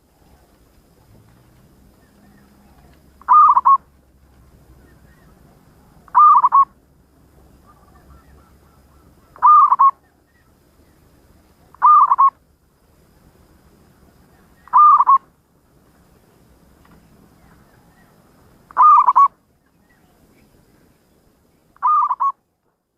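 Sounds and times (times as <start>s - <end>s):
dove cooing: 1.9s - 3.9s, 4.7s - 6.8s, 7.6s - 10.5s, 11.7s - 12.4s, 14.3s - 15.3s, 17.4s - 19.4s, 21.8s - 22.4s.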